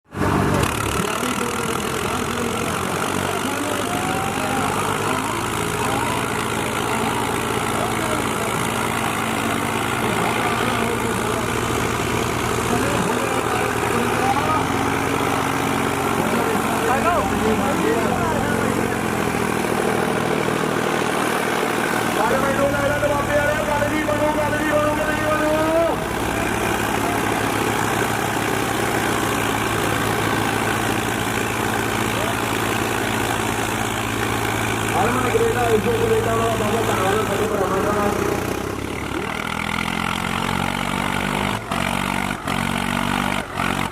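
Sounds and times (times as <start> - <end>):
crowd voices: 0.0 - 43.9
diesel tractor engine idling: 0.0 - 43.9.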